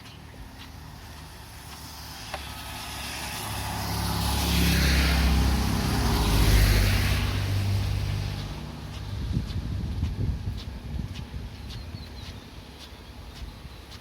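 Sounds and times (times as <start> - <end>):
vehicle passing by: 0.4 - 10.5.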